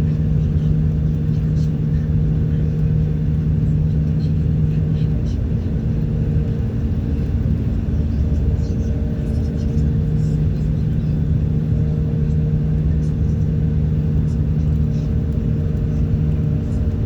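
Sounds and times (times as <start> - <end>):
car engine hum: 0.0 - 17.0
road rumble: 0.0 - 17.0.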